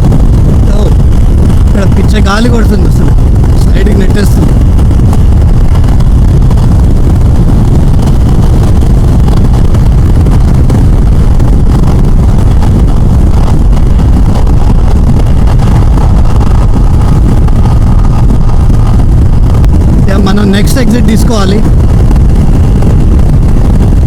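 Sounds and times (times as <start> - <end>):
wind buffeting microphone: 0.0 - 24.0
motorcycle engine: 3.0 - 20.7.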